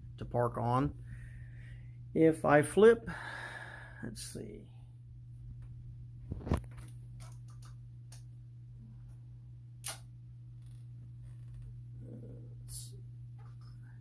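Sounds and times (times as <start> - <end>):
low electrical hum: 0.0 - 14.0
small clicks and knocks: 6.3 - 8.3.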